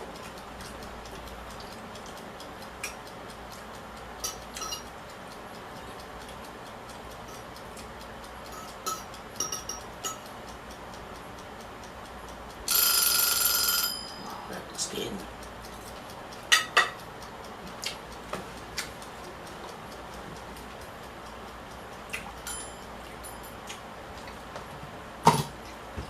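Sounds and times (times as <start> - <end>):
light clicks and clinks while eating: 0.1 - 12.4, 13.9 - 24.7
electronic timer alarm: 12.7 - 14.4.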